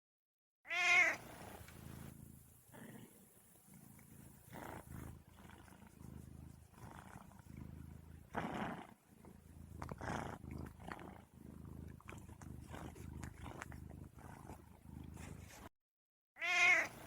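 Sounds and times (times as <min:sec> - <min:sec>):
cat crying: 0:00.7 - 0:01.2, 0:16.4 - 0:17.0
cat purring: 0:01.0 - 0:15.7.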